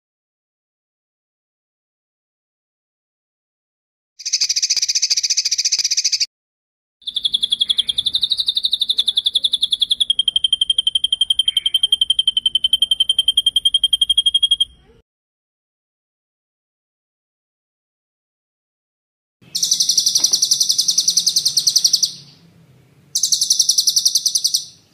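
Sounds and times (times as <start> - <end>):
high-pitched bird trills: 4.2 - 6.3, 7.0 - 15.0, 19.5 - 22.4, 23.1 - 24.9.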